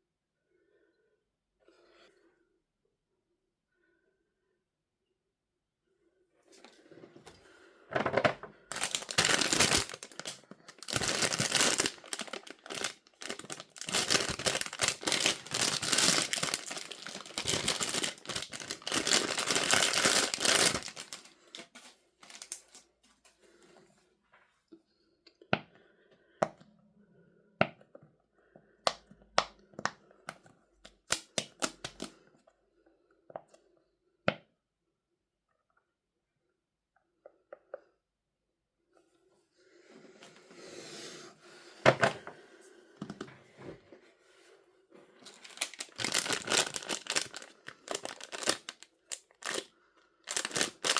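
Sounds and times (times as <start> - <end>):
packaging torn and crinkled: 8.7 - 22.8, 31.0 - 32.1, 45.3 - 49.7, 50.3 - 50.9.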